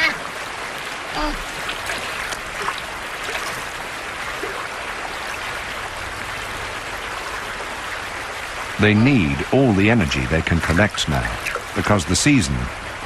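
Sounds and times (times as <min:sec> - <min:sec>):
creek water running: 0:00.0 - 0:13.0.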